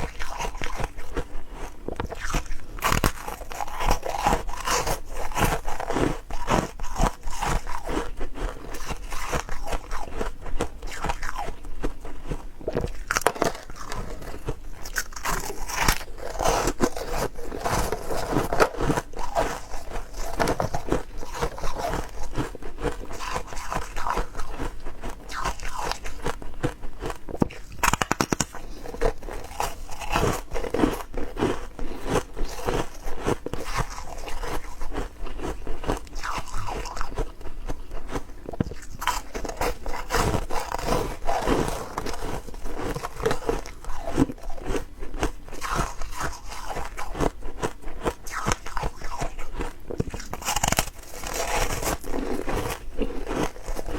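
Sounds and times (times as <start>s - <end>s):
person crunching ice cubes: 0.0s - 53.9s.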